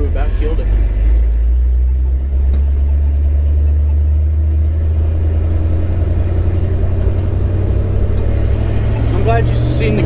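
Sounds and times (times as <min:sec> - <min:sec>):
truck engine running: 0:00.0 - 0:10.0.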